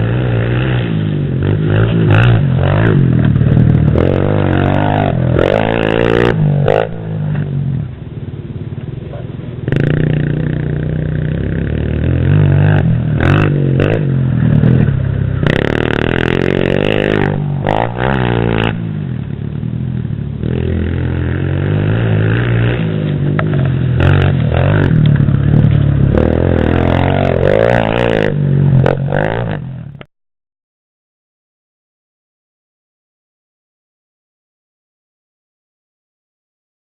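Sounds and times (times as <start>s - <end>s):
pit bike engine revving: 0.0s - 7.6s, 9.6s - 30.1s.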